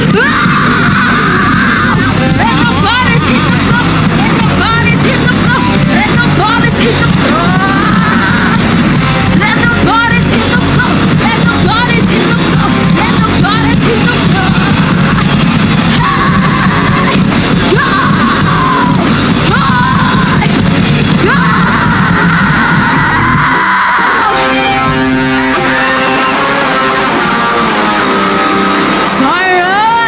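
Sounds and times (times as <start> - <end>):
rock band playing heavy music: 0.0 - 30.0.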